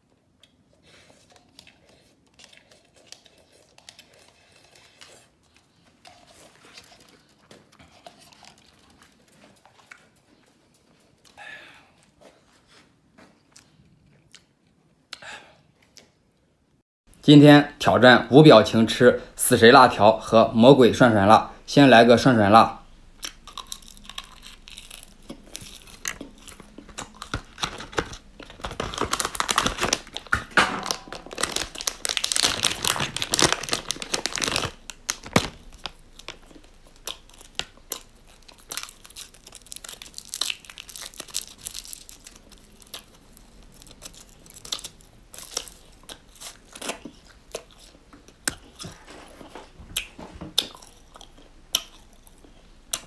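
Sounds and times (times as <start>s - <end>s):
chewing and mouth clicks: 0.4s - 11.4s, 13.4s - 15.2s, 23.2s - 30.3s, 31.4s - 53.0s
foil wrapper crinkling and tearing: 23.5s - 47.4s.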